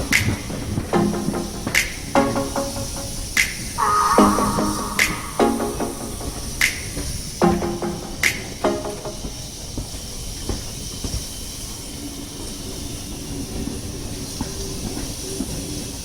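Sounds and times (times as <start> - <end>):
wheels clicking on track: 0.0 - 2.2, 8.0 - 16.0
train running rumble: 0.0 - 3.4
steam hissing: 0.0 - 16.0.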